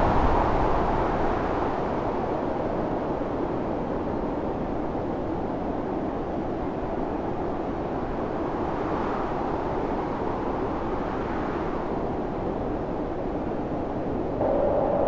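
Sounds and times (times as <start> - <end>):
storm wind blowing: 0.0 - 3.1, 14.0 - 15.0.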